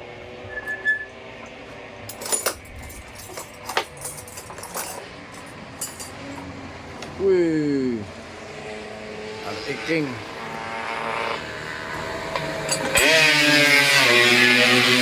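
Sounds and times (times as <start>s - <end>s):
tools clinking against steel: 2.1s - 7.1s, 12.3s - 13.4s.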